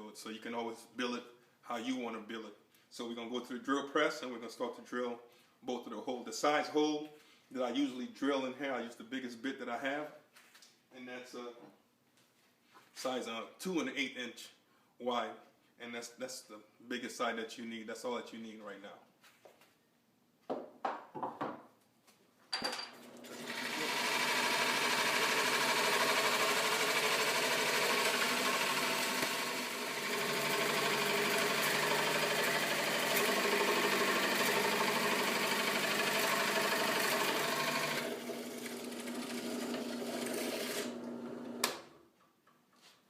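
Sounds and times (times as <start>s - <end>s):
drill press motor humming: 23.1s - 41.9s.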